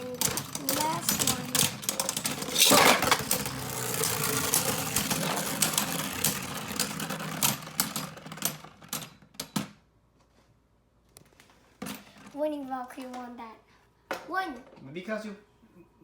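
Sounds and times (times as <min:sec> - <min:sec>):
spinning tops clattering: 0:00.6 - 0:08.6.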